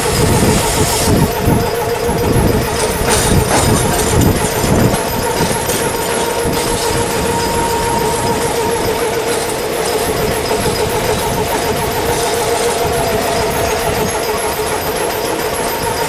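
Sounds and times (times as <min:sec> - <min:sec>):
mid-pitched whine: 0:00.0 - 0:16.0
train rumbling along track: 0:00.0 - 0:16.0.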